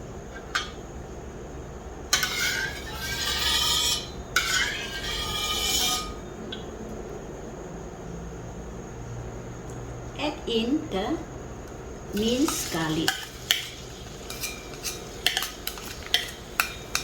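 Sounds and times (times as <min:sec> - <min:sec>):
spatula tapping wok: 0:02.1 - 0:06.2, 0:12.2 - 0:17.0
metal spatula scraping wok: 0:02.1 - 0:06.3, 0:12.1 - 0:17.0.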